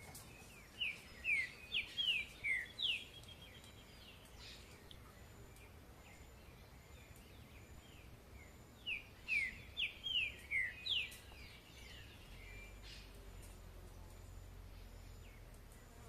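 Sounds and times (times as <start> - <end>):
faint bird chirps: 0.0 - 16.0
songbird whistled notes: 0.3 - 4.6, 8.8 - 13.1.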